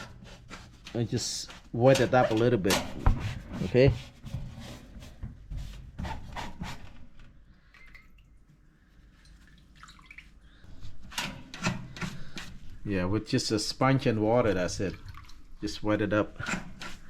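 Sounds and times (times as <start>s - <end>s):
wet sponge rubbing: 0.0s - 7.0s
water squishing and dripping: 7.6s - 10.6s, 14.2s - 15.9s.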